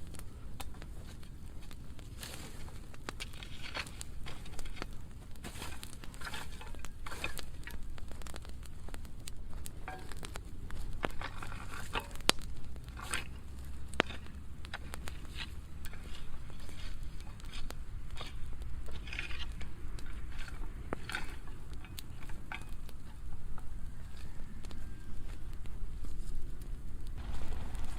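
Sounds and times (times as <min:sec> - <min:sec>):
burning wood crackling: 0:00.0 - 0:27.9
low steady rumble: 0:25.4 - 0:27.9
sharp pops: 0:27.2 - 0:27.9.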